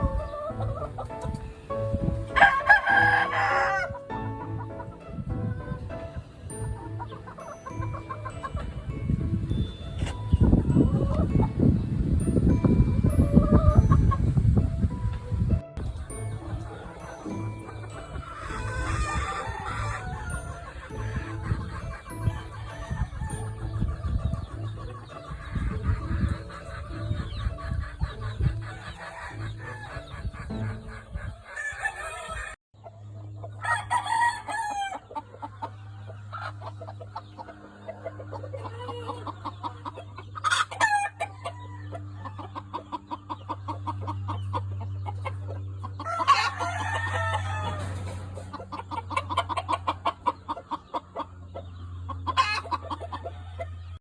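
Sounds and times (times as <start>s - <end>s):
roosters crowing: 0.0s - 5.0s, 15.8s - 32.6s, 33.4s - 54.0s
chickens clucking: 0.0s - 54.0s.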